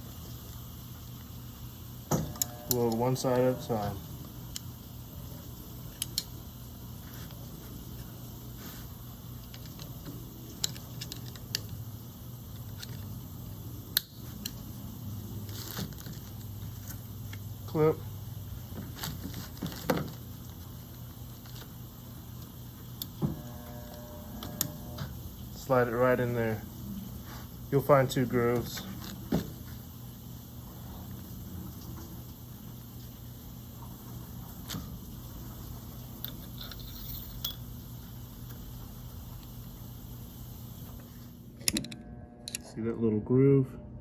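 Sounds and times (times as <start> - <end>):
metal parts clicking and tapping: 9.4 - 11.8, 36.2 - 37.7.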